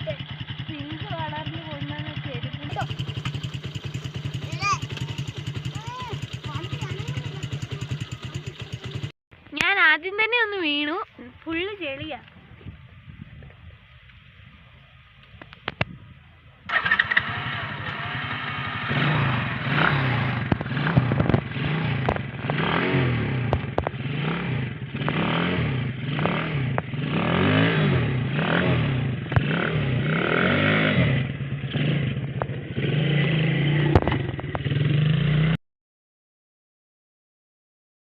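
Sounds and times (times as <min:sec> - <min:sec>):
quad bike engine revving: 0:00.0 - 0:09.1, 0:16.7 - 0:35.6.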